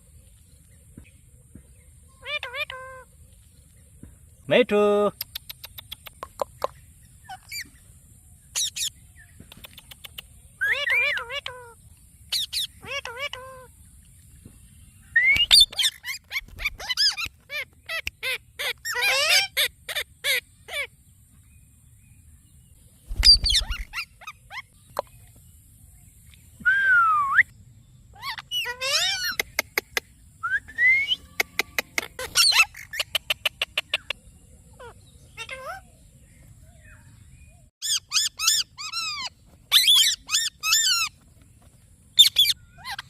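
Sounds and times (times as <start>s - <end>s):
parrot chirps and whistles: 15.2s - 17.3s, 23.2s - 24.6s, 37.8s - 41.1s.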